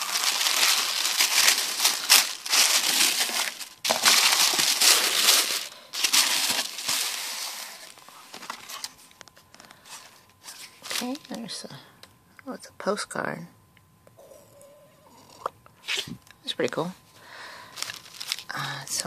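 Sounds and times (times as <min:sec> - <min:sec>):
packaging crinkling and rustling: 0:00.0 - 0:11.6, 0:17.5 - 0:19.0.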